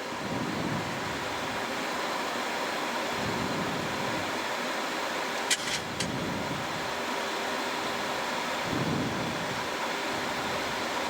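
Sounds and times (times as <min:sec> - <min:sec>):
cockpit airflow and engine noise: 0:00.0 - 0:11.0
short sharp clicks: 0:05.5 - 0:06.1.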